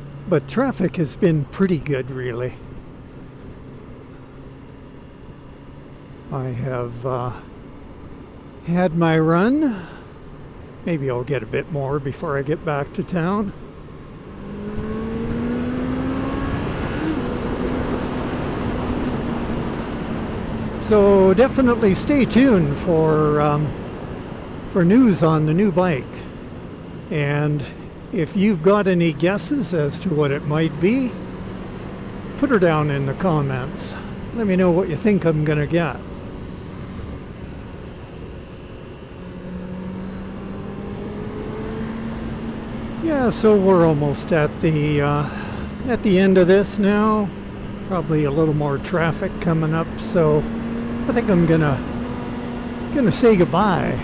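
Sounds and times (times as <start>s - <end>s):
motorcycle engine accelerating: 0.0s - 54.0s
low wind rumble: 1.2s - 54.0s.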